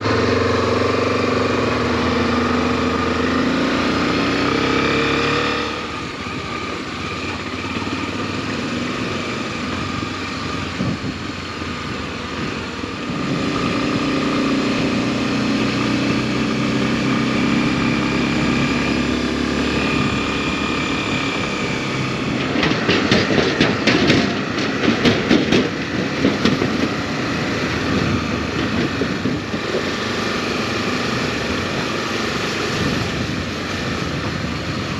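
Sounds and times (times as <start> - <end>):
motorcycle engine running: 0.0 - 34.9
road and wind noise: 0.0 - 34.9
irregular knocks and thumps: 22.4 - 27.0.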